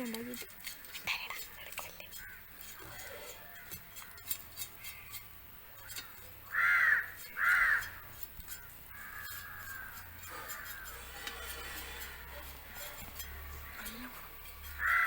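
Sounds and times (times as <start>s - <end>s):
crow cawing: 6.5s - 8.0s, 8.9s - 11.1s, 14.6s - 15.0s.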